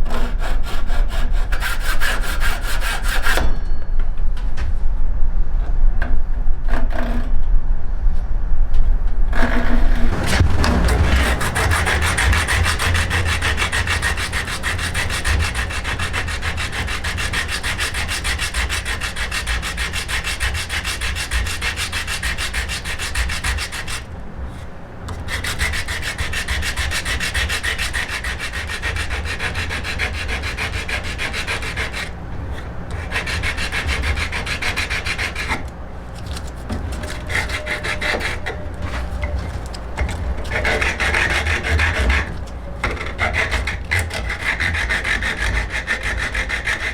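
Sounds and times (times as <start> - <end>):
hand rubbing wooden bow stave: 9.4 - 24.0, 25.1 - 46.9.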